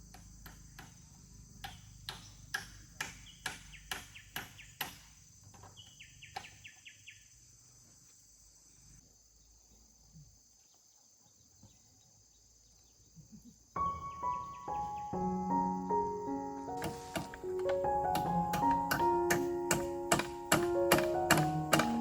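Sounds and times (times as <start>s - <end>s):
insect chirring: 0.0s - 22.0s
sharp knocks: 16.8s - 22.0s.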